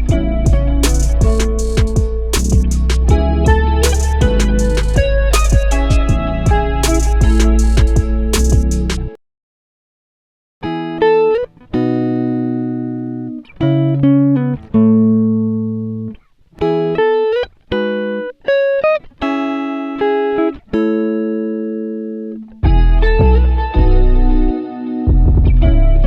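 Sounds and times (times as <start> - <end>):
plucked guitar-like chords: 0.0 - 9.2, 10.6 - 26.0.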